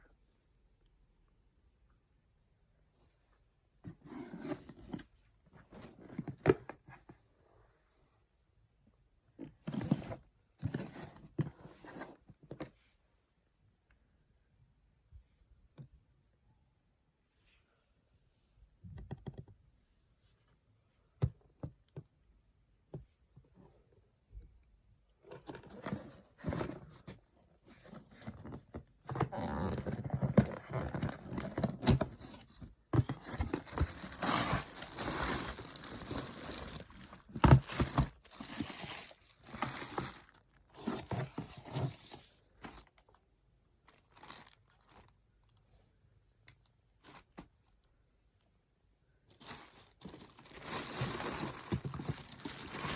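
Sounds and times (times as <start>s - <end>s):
packaging rustling and tearing: 29.3s - 43.0s, 43.9s - 45.1s, 49.3s - 52.9s.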